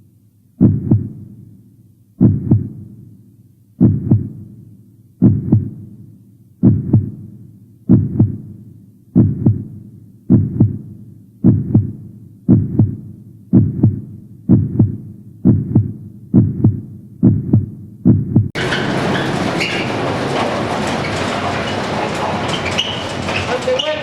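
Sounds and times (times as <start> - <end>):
heartbeat thumps: 0.6 - 1.3, 2.2 - 2.9, 3.8 - 4.5, 5.2 - 5.9, 6.6 - 7.3, 7.9 - 8.6, 9.2 - 18.6.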